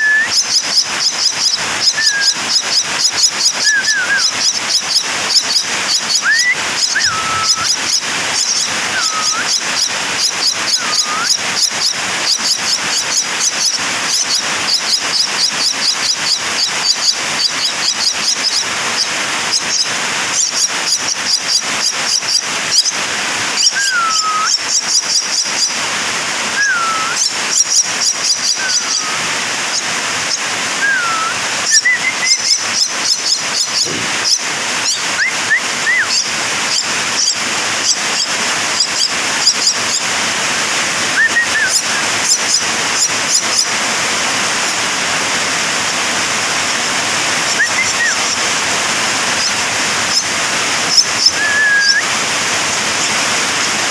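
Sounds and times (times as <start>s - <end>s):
sliding whistled notes: 0.0s - 9.6s, 10.7s - 11.4s, 23.6s - 24.6s, 26.6s - 27.4s, 28.4s - 29.2s, 30.8s - 33.9s, 34.9s - 36.3s, 41.2s - 42.0s, 47.5s - 48.3s, 50.9s - 52.1s
birds chirping: 0.0s - 53.9s
steady hiss: 0.0s - 53.9s.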